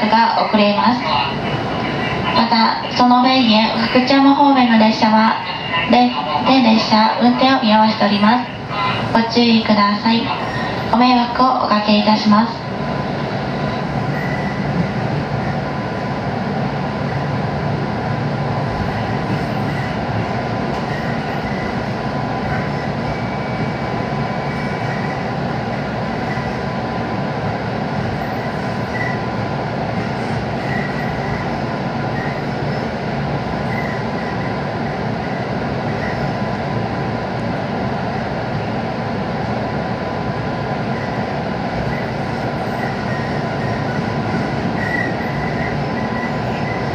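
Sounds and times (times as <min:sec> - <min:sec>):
electric train running noise: 0:00.2 - 0:46.9.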